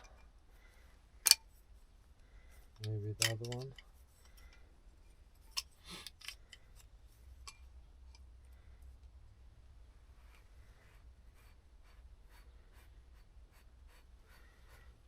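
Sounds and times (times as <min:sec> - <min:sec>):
low steady hum: 0:00.0 - 0:15.0
hand tools tapping metal: 0:02.8 - 0:03.9.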